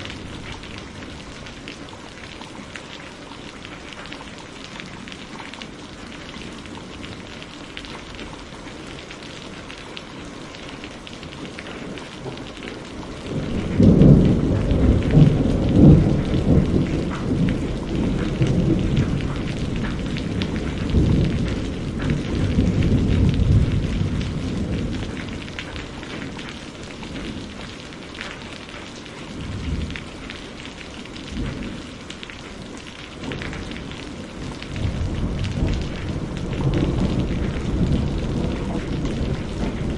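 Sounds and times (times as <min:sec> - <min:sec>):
steady rain falling: 0:00.0 - 0:39.9
thunder rumbling: 0:12.0 - 0:26.5, 0:33.2 - 0:39.9.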